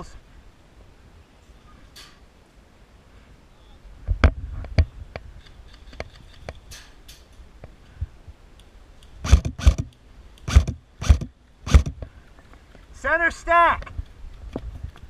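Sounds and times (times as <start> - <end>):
sharp knocks and clicks: 9.0 - 12.1.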